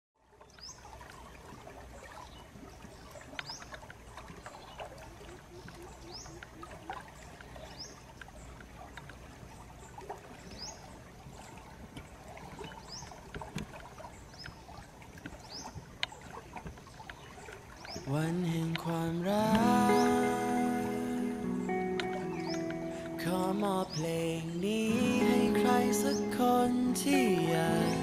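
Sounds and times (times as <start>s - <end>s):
faint scattered clicks: 3.1s - 5.0s, 5.6s - 9.4s, 11.3s - 20.4s, 21.0s - 27.6s
bird chirping: 19.6s - 24.3s, 24.9s - 28.0s.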